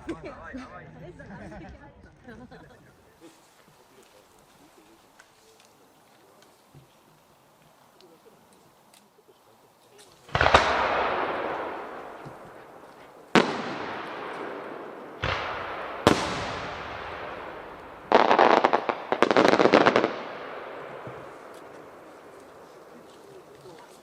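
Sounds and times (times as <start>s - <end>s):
firework crackling: 9.9s - 24.0s
firework shells booming: 10.2s - 24.0s.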